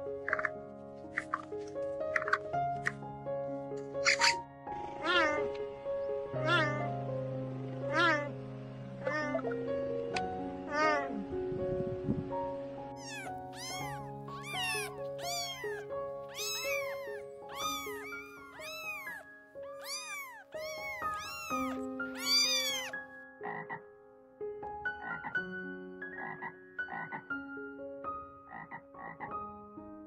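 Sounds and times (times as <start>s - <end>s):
soft background music: 0.0s - 30.0s
cat meowing: 5.0s - 5.5s, 6.4s - 6.9s, 7.9s - 8.3s, 9.0s - 9.4s, 10.7s - 11.2s, 13.0s - 23.0s.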